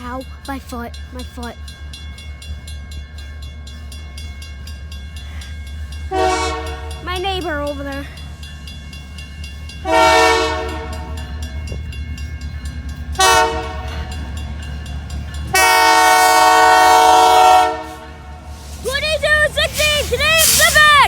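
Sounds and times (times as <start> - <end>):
train rumbling: 0.0 - 21.0
locomotive air horn blasts: 6.1 - 7.0, 9.8 - 11.2, 13.2 - 14.0, 15.5 - 18.5.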